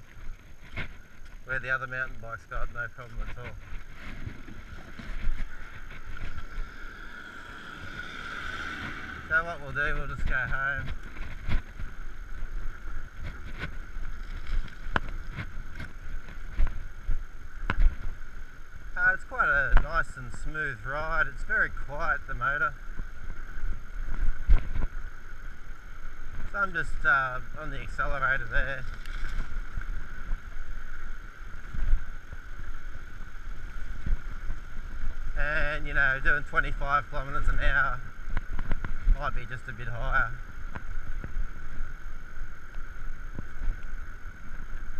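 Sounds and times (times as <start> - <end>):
electric bicycle motor whine: 0.0 - 44.9
tyres on road: 0.0 - 44.9
wind rumble on microphone: 0.0 - 44.9
electric motor whine: 3.2 - 19.8.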